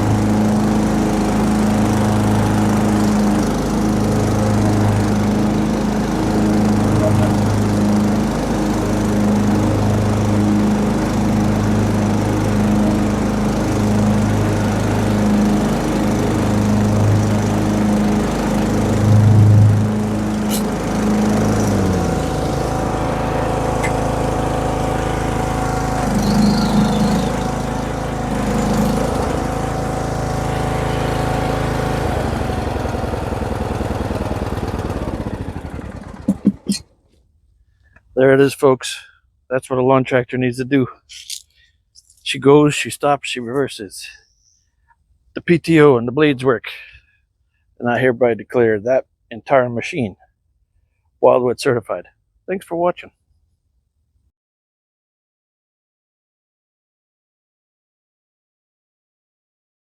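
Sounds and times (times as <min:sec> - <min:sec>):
lawn tractor engine running: 0:00.0 - 0:36.9.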